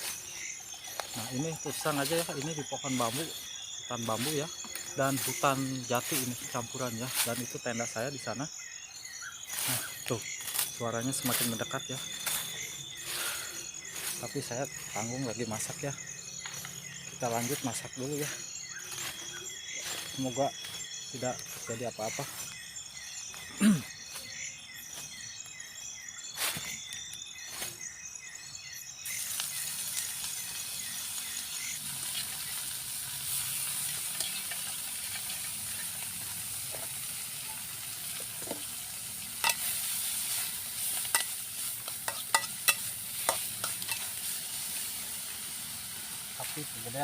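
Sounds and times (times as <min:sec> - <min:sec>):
food sizzling in a pan: 0:00.0 - 0:08.0, 0:29.0 - 0:47.0
insects trilling: 0:00.0 - 0:47.0.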